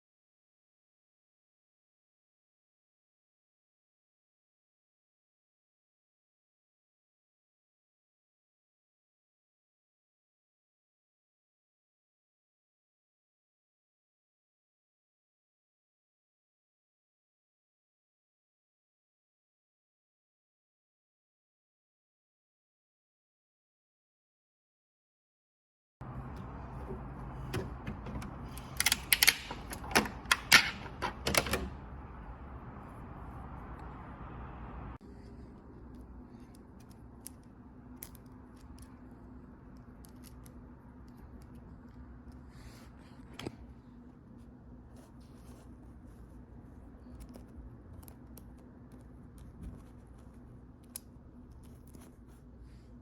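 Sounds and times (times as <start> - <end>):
faint low hum: 26.0 - 53.0
steady low background noise: 26.0 - 53.0
fidget cube clicking: 28.2 - 30.8.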